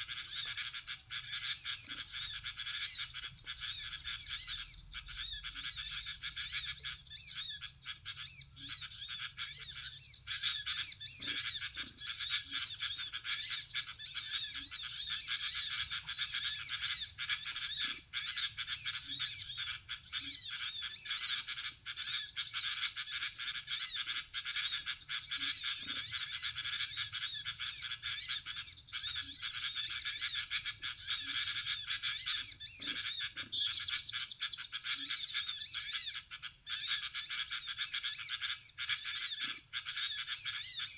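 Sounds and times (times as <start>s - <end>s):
small birds chirping and twittering: 0.0s - 40.9s
steady bird trill: 0.0s - 40.9s.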